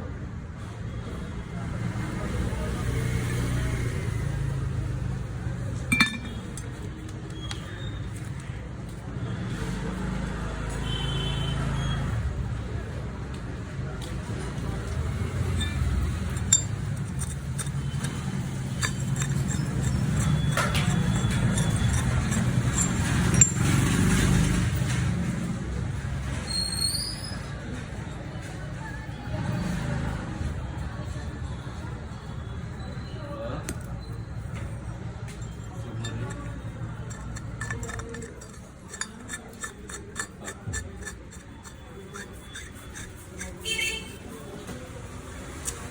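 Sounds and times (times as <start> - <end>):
road traffic rumble: 0.0 - 45.9
metal tools clinking: 5.8 - 7.7, 14.8 - 24.5, 35.4 - 44.5.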